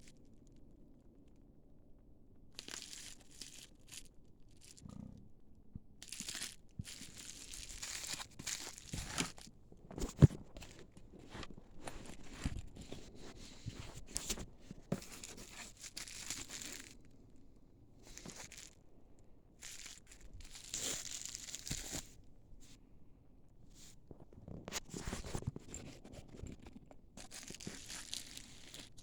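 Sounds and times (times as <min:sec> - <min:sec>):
plastic packaging crinkling and tearing: 0:02.6 - 0:04.8, 0:06.0 - 0:17.0, 0:18.1 - 0:18.8, 0:19.6 - 0:22.1, 0:27.2 - 0:29.0.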